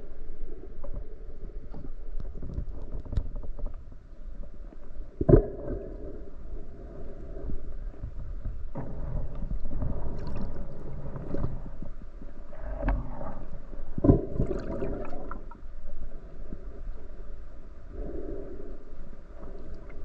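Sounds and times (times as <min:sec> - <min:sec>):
underwater water movement and bubbling: 0:00.0 - 0:20.0.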